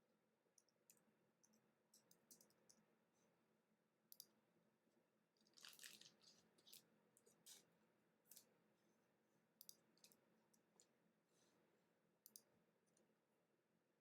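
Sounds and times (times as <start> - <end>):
cards crinkly rustle: 5.4 - 7.6.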